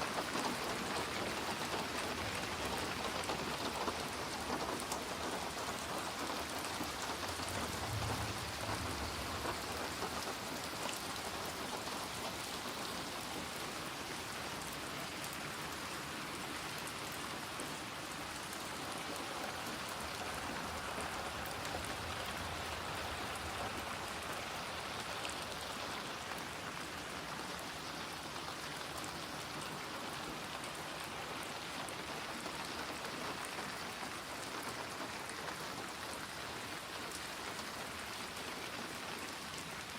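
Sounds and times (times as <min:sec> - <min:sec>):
rain pattering on surfaces: 0:00.0 - 0:39.9
distant thunder rumble: 0:06.3 - 0:11.6, 0:19.2 - 0:26.0.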